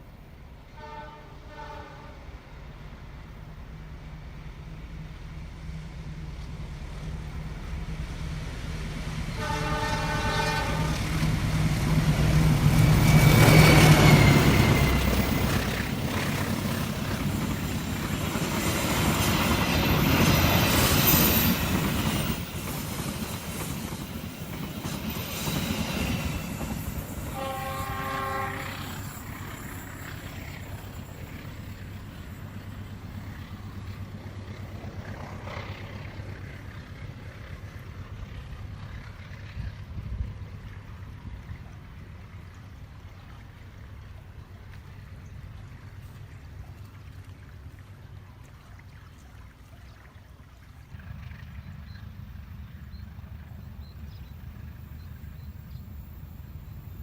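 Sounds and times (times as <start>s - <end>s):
train horn: 0.7s - 2.5s, 9.2s - 11.3s, 27.3s - 29.2s
locomotive engine rumble: 1.3s - 57.0s
train wheels rattling: 6.7s - 40.1s.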